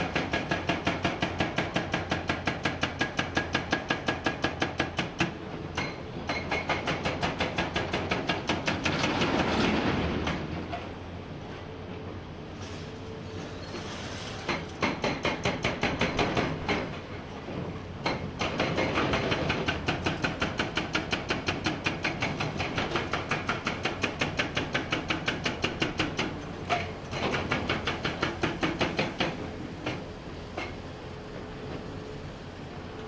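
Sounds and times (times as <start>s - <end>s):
excavator engine: 24.2s - 33.0s.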